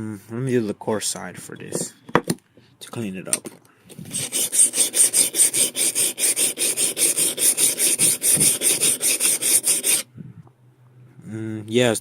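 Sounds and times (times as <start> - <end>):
chisel scraping on sharpening stone: 4.1 - 10.0.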